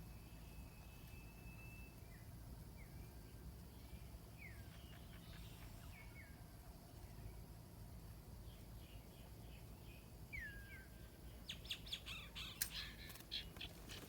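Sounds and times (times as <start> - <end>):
low background hum: 0.0 - 14.0
small bird calls: 3.7 - 6.4, 8.4 - 14.0.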